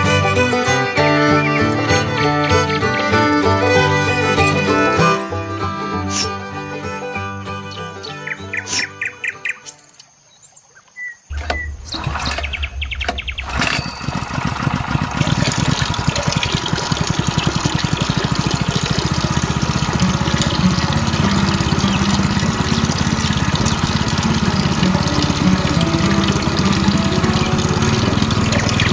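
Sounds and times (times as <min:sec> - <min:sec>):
electric water pump buzzing: 0:16.3 - 0:28.9.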